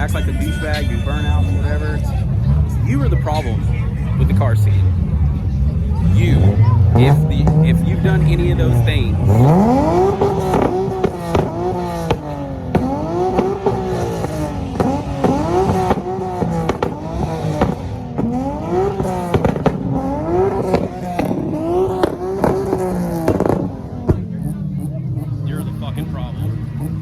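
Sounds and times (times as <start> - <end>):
car engine revving: 0.0 - 27.0
exhaust pops: 6.2 - 27.0.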